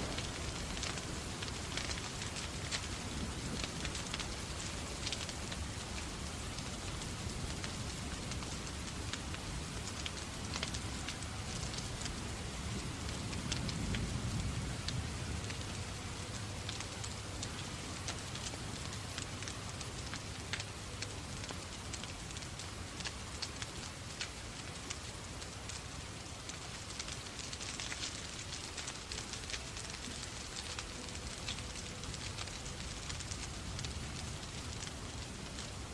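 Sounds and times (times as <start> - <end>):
steady rain: 0.0 - 35.9
wood fire crackling and popping: 0.0 - 35.9.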